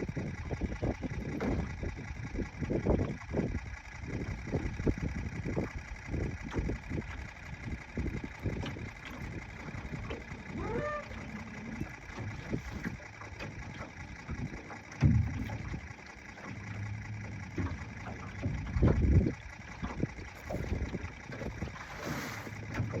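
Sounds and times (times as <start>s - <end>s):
wind buffeting microphone: 0.0s - 21.9s
low thumps: 8.6s - 21.0s.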